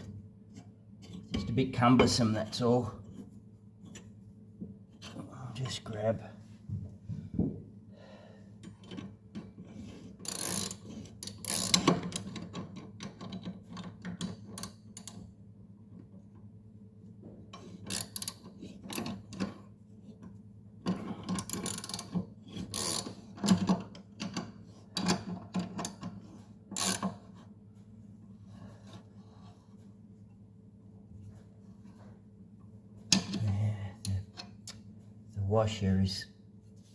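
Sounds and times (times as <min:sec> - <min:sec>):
ratchet wrench clicking: 0:10.2 - 0:11.8, 0:22.7 - 0:23.1, 0:26.8 - 0:27.1.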